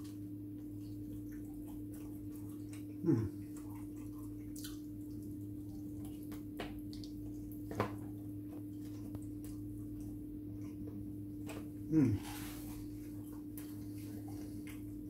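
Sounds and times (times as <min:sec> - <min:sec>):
steady low hum: 0:00.0 - 0:15.0
person chewing food: 0:00.5 - 0:15.0
person humming mm: 0:03.0 - 0:03.4, 0:11.8 - 0:12.8.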